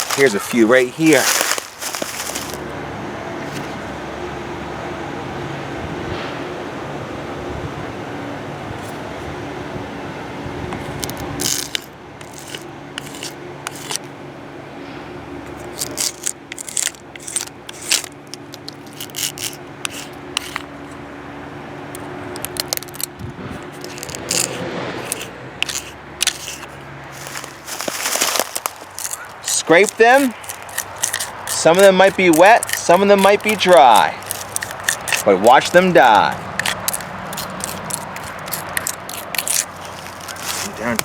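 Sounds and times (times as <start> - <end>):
tool scraping tree bark: 0.0 - 2.7, 3.4 - 3.8, 10.8 - 14.1, 15.5 - 21.0, 22.0 - 41.0.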